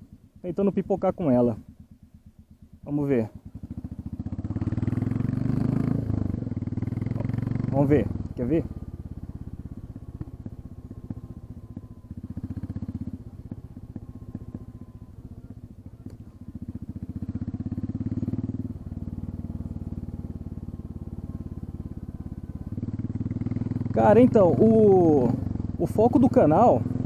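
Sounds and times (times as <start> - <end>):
motorcycle engine open exhaust: 0.0 - 27.0.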